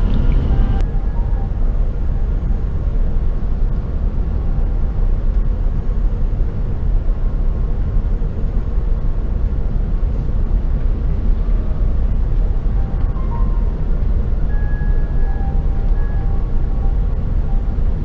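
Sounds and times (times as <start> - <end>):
airliner cabin low rumble: 0.0 - 18.0.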